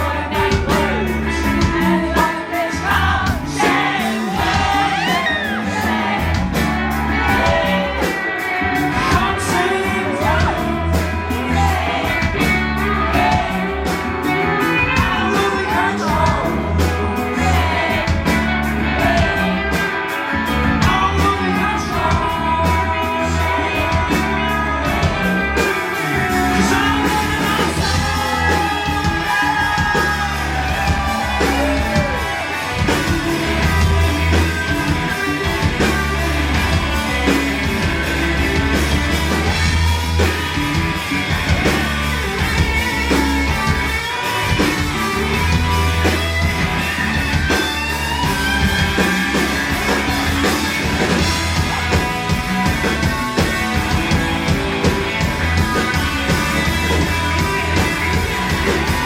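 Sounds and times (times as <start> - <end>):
person singing: 0.0 - 39.7
drums: 0.0 - 59.0
live rock band: 0.0 - 59.0.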